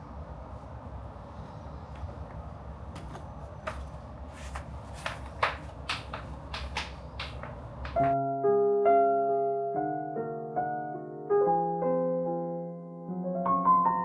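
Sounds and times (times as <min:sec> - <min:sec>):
light clicks and knocks: 0:01.9 - 0:08.2
soft piano music: 0:07.0 - 0:14.0.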